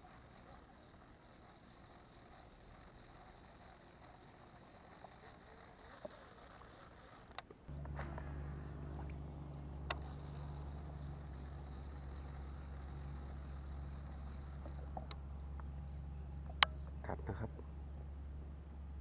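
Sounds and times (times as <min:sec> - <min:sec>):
low engine hum: 0:07.6 - 0:19.0
sharp clicks: 0:09.8 - 0:10.6.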